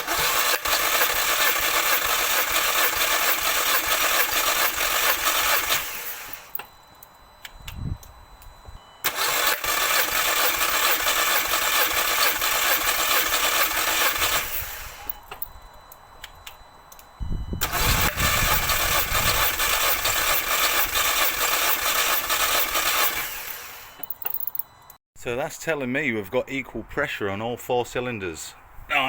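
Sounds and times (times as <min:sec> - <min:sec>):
engine cranking on starter motor: 0:00.0 - 0:06.7, 0:09.0 - 0:15.5, 0:17.5 - 0:24.4.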